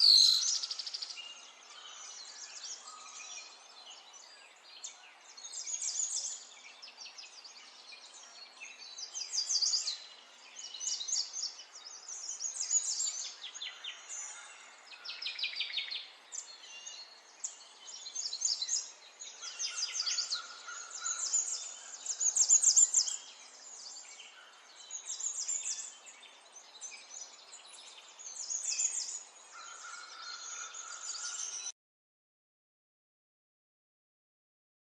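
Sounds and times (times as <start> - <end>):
songbird trilling and chirping: 0.0 - 7.5, 15.0 - 26.2, 26.8 - 31.7.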